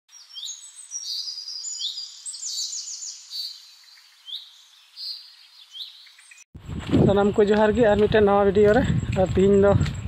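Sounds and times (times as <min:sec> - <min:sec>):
birds singing: 0:00.1 - 0:06.5.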